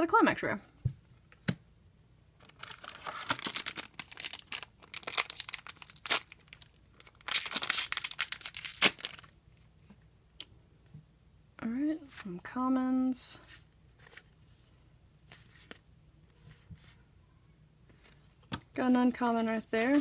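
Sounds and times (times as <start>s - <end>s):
foil pack tearing and crinkling: 2.5s - 9.3s.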